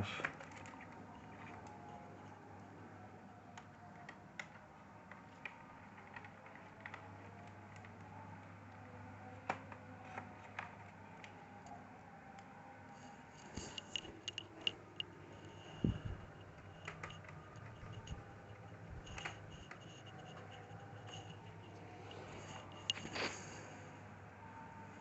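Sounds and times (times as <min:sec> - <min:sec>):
faint steady hum: 0:00.0 - 0:25.0
plastic parts clicking: 0:13.6 - 0:23.2.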